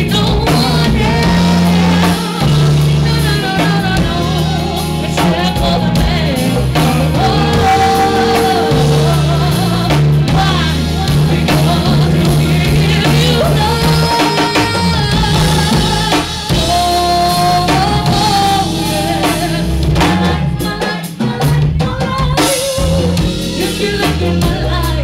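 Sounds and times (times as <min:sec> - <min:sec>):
low instruments: 0:00.0 - 0:21.9
drum kit: 0:00.0 - 0:25.0
person singing long wavering notes: 0:01.0 - 0:20.7.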